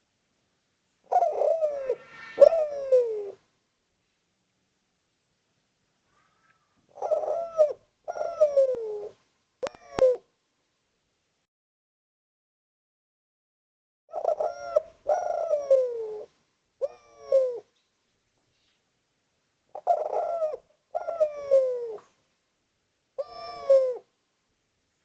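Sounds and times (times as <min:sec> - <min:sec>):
dove cooing: 0:01.1 - 0:03.4, 0:06.1 - 0:10.3, 0:14.1 - 0:17.7, 0:19.7 - 0:22.1, 0:23.2 - 0:24.1.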